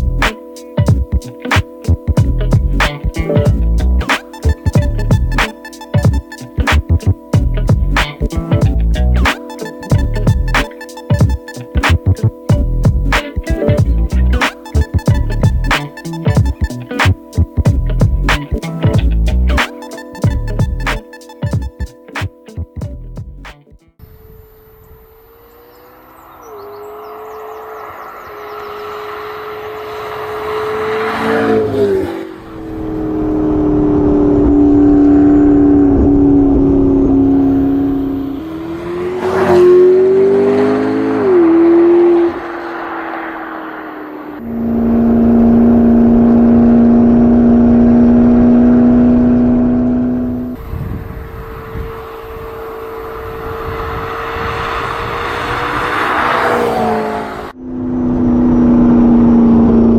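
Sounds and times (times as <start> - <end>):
car engine running hard: 25.1 - 59.9.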